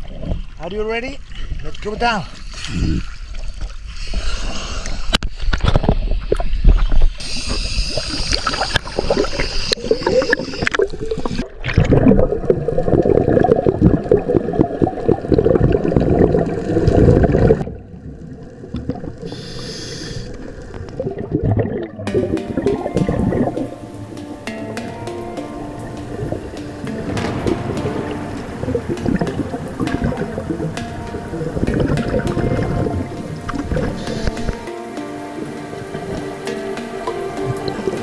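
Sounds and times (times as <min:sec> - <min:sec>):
gurgling exhaled bubbles: 0:05.8 - 0:23.8, 0:26.1 - 0:34.7
regulator hissing inhalations: 0:07.2 - 0:11.4, 0:19.3 - 0:20.4, 0:32.8 - 0:38.0.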